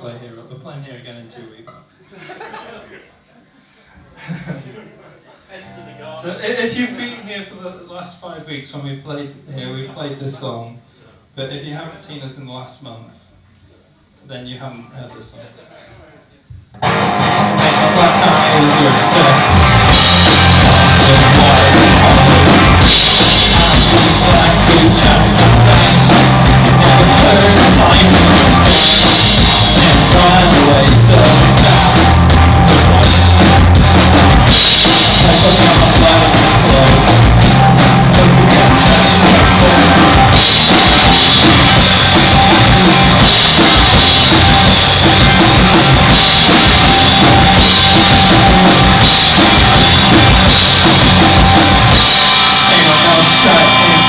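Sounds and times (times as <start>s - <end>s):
rock band playing live: 16.8s - 54.0s.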